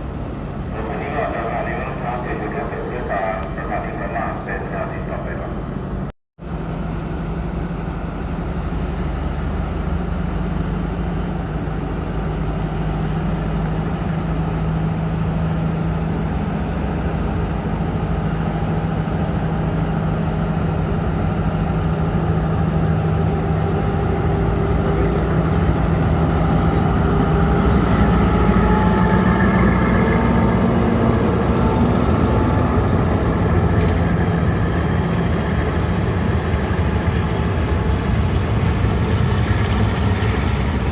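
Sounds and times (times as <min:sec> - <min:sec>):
diesel locomotive engine rumbling: 0:00.0 - 0:40.9.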